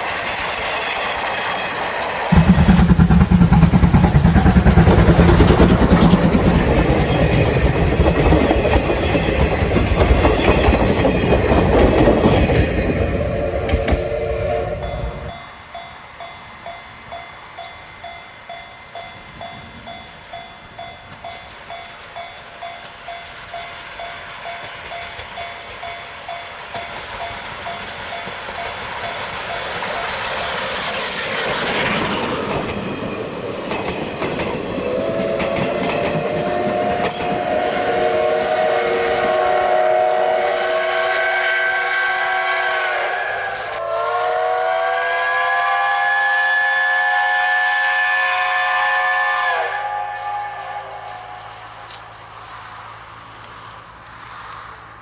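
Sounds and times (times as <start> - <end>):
steam hissing: 0.0 - 55.0
steam locomotive chugging: 0.0 - 55.0
steam whistle blast: 2.3 - 5.6, 13.5 - 15.6, 34.7 - 51.9.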